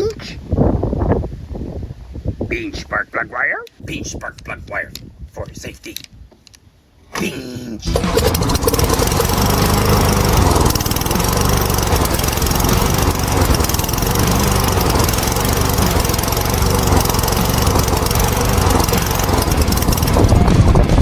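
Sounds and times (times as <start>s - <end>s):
lawn mower engine running: 7.9s - 21.0s.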